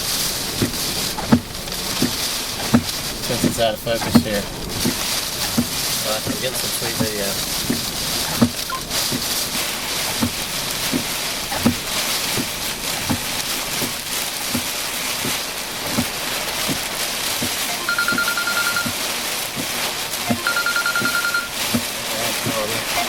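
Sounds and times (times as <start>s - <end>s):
heavy rain and wind on car: 0.0s - 23.0s
fast-pulsed electronic phone tone: 17.7s - 19.0s, 20.3s - 21.6s.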